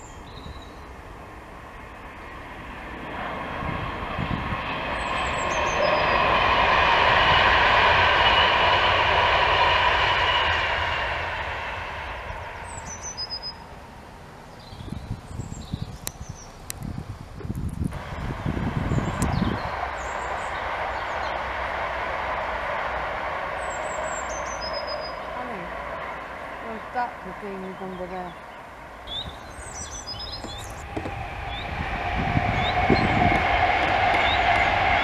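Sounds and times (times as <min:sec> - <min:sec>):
electric train passing: 0:00.0 - 0:35.0
wind buffeting microphone: 0:00.0 - 0:35.0
birds chirping: 0:04.8 - 0:06.3, 0:12.0 - 0:13.8, 0:18.4 - 0:21.7, 0:22.7 - 0:35.0.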